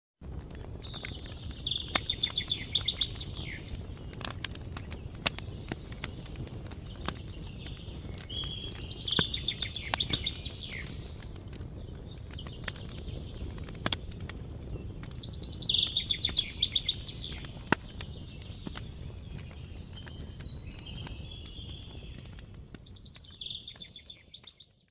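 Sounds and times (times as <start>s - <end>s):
campfire crackling and popping: 0.2s - 24.9s
songbird trilling: 1.2s - 3.7s, 8.3s - 11.0s, 15.3s - 17.6s.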